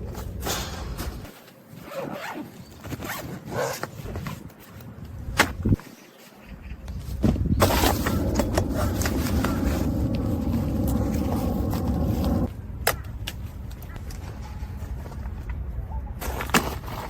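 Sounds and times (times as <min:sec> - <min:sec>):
low rumble: 0:07.6 - 0:12.5.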